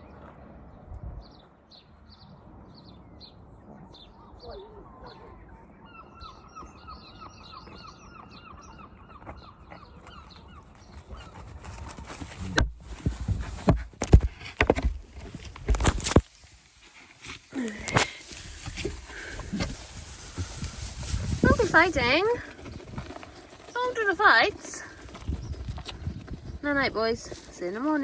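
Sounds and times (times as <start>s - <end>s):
farmyard birds chirping: 1.2s - 12.6s.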